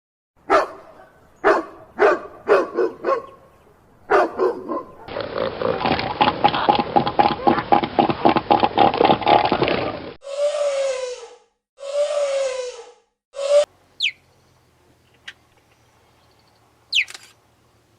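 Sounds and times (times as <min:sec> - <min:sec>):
dog barking: 0:00.4 - 0:03.4, 0:04.1 - 0:05.2.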